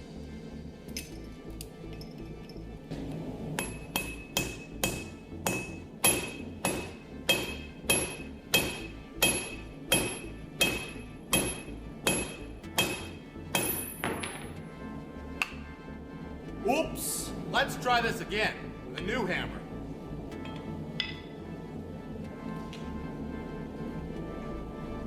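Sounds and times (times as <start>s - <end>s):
hammer striking metal on anvil: 3.6s - 14.5s, 20.4s - 21.3s.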